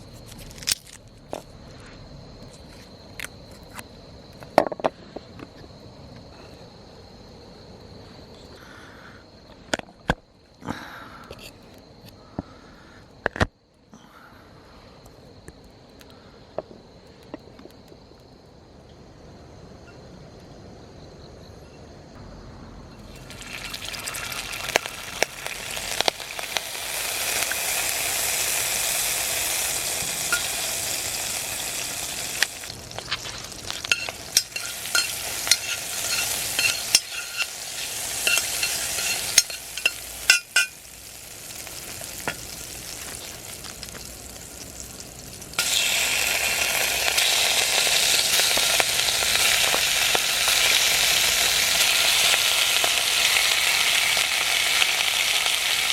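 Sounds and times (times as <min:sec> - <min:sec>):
food sizzling in a pan: 0:23.0 - 0:55.9
utensil scraping a pan: 0:33.0 - 0:40.8.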